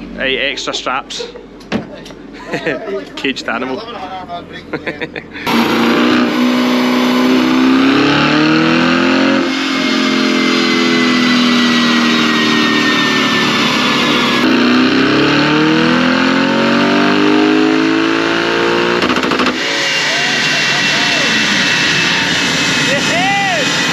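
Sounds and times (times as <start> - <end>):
car engine revving on a dyno: 5.4 - 23.9.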